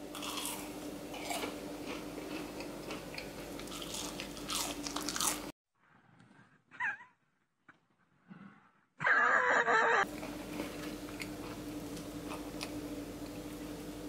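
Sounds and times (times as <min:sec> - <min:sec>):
crunchy chewing: 0:00.0 - 0:05.5, 0:10.1 - 0:13.6
steady low hum: 0:00.0 - 0:05.5, 0:09.5 - 0:14.0.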